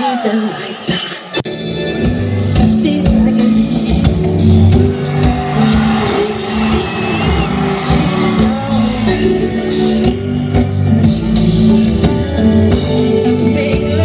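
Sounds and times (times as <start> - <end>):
electric guitar: 1.4 - 14.0
keyboard chords: 1.4 - 14.0
steady drum beat: 2.0 - 14.0.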